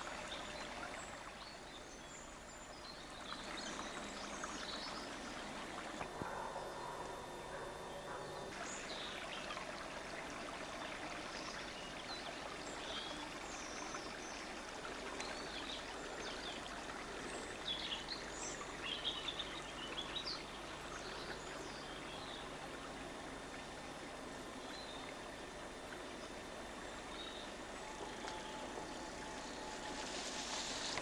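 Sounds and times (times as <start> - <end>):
birds chirping: 0.0 - 9.4
small stream running: 0.0 - 31.0.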